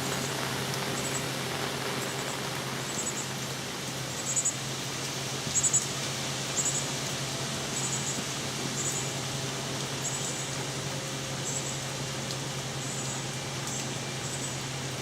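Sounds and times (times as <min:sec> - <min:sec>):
rain: 0:00.0 - 0:15.0.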